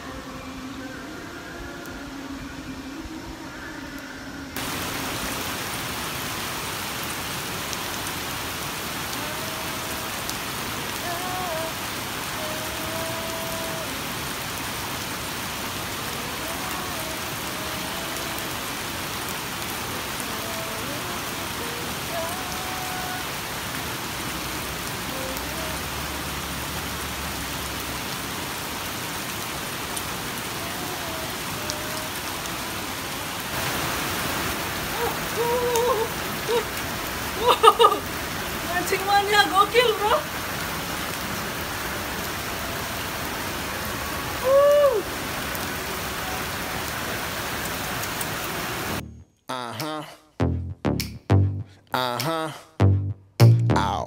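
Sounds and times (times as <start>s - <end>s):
heavy rain on water: 4.6s - 49.0s.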